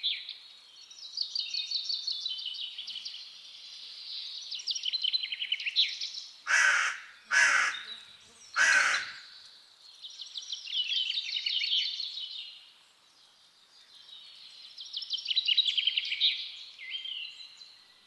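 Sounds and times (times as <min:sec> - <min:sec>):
songbird trilling: 0:04.6 - 0:09.4.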